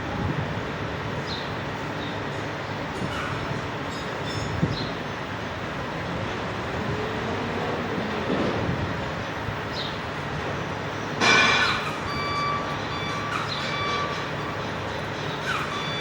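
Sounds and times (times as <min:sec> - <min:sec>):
vehicle and workshop noise: 0:00.0 - 0:16.0
high reversing alarm beeping: 0:10.6 - 0:16.0.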